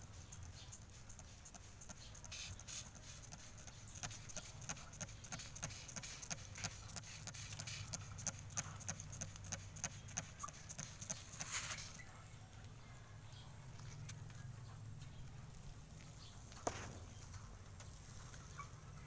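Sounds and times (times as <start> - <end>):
water spray pattering: 0.0 - 12.0
short hissy bursts: 0.0 - 12.1.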